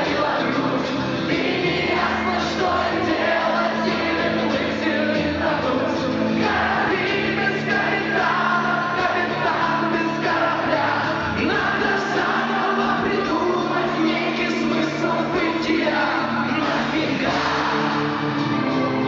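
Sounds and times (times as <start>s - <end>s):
person singing: 0.0s - 19.0s
rock band playing: 0.0s - 19.0s.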